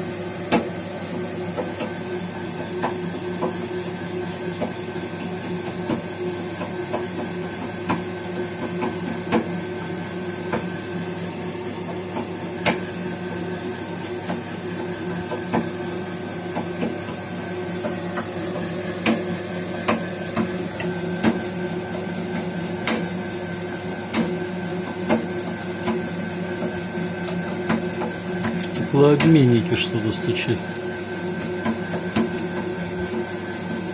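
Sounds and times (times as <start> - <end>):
gas boiler humming: 0.0 - 33.9
sharp knocks in boiler: 0.5 - 0.7.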